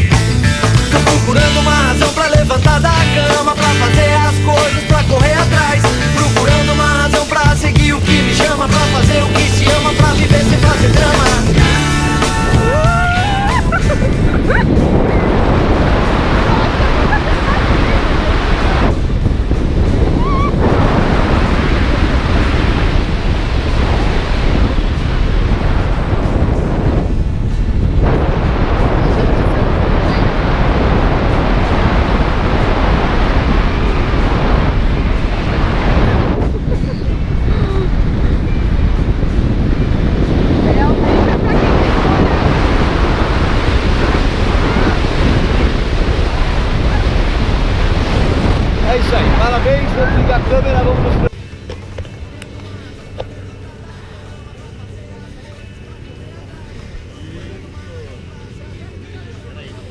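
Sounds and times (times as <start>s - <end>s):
wind buffeting microphone: 7.6s - 53.7s.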